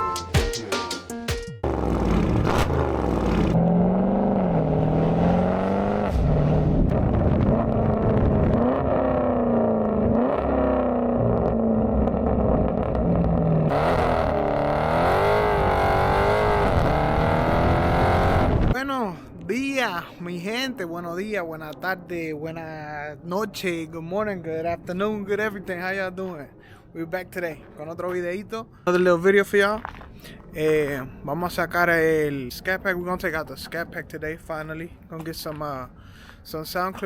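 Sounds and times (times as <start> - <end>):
car exhaust revving: 1.6 - 18.8.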